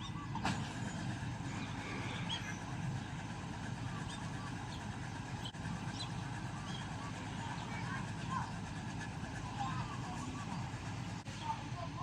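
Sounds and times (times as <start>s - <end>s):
combine harvester engine rumble: 0.0s - 12.0s.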